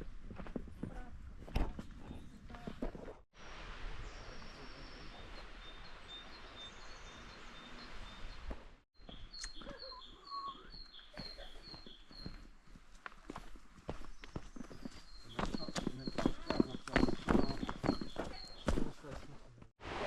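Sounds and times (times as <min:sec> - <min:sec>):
songbird repeating high call: 0:09.1 - 0:12.4.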